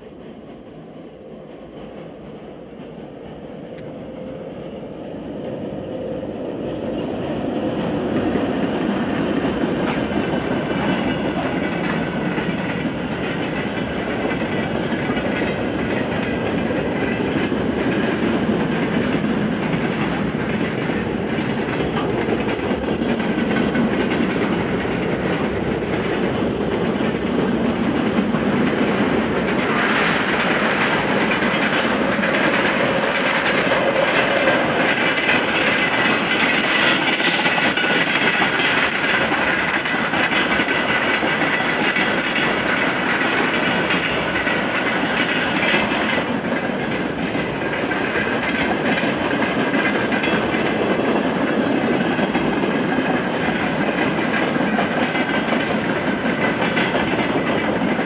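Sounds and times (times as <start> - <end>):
heavy train rumble: 0.0 - 58.0
train wheels clattering: 0.0 - 58.0.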